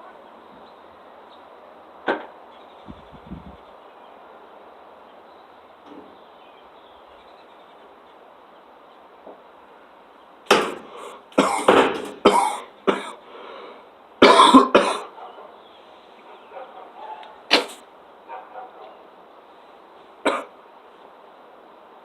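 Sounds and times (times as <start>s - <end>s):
man coughing hard: 11.4s - 13.2s, 14.2s - 15.1s, 20.3s - 20.5s.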